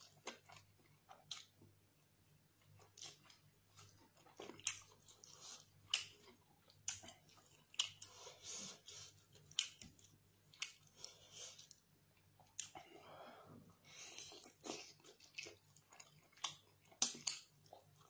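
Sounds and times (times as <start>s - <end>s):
wet chewing: 2.6s - 13.0s, 13.9s - 18.0s
lip smacks and mouth clicks: 9.4s - 10.8s, 16.3s - 17.5s.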